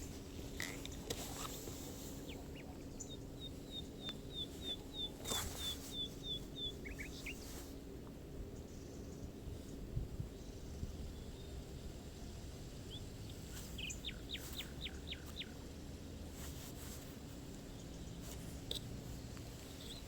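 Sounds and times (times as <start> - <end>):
soft rustles: 0.0 - 8.2, 13.4 - 20.0
bird chirps: 2.2 - 7.6, 12.8 - 15.6.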